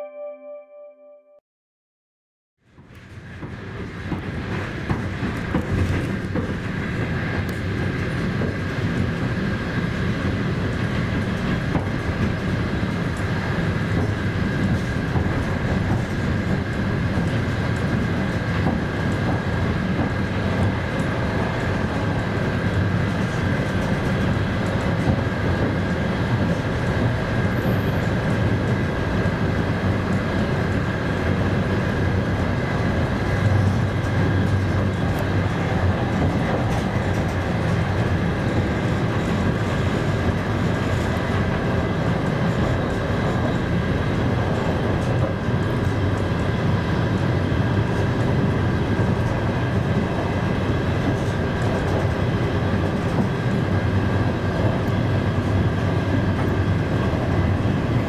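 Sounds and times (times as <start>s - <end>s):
rumble of train wheels on rails: 2.6s - 58.0s.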